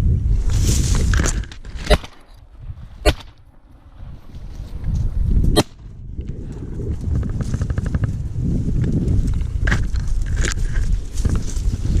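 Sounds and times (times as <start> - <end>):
shotgun shot: 1.9 - 2.2, 3.0 - 3.4, 5.6 - 5.8.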